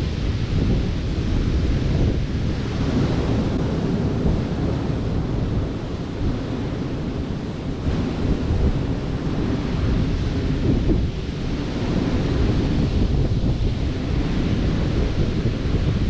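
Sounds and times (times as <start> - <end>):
surf breaking on beach: 0.0 - 16.0
wind buffeting microphone: 0.0 - 16.0.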